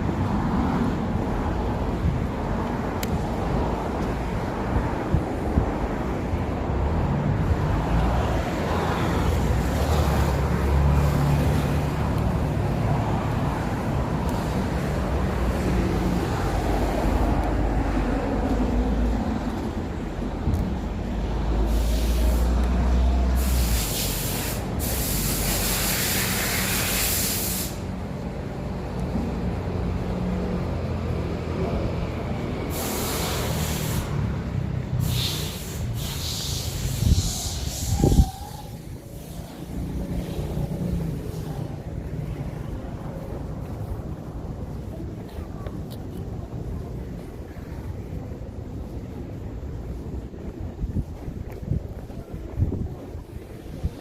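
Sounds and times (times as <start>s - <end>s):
vehicle engines rumbling: 0.0s - 54.0s
hissing bursts: 21.6s - 22.6s, 23.3s - 28.0s, 32.6s - 34.4s, 35.0s - 39.7s.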